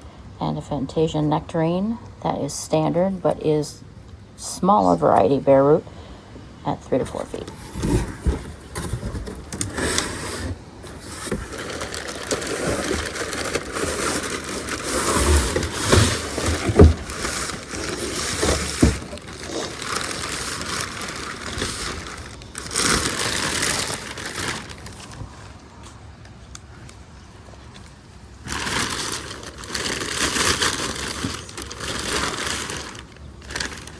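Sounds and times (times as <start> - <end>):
packaging crinkling and rustling: 7.0 - 27.0, 27.7 - 33.9.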